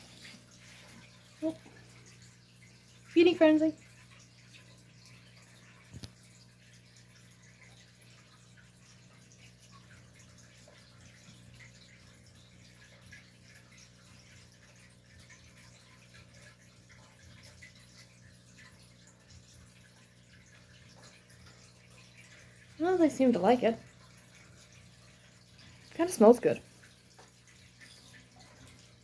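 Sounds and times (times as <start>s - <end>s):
aquarium water trickling: 0.0s - 29.0s.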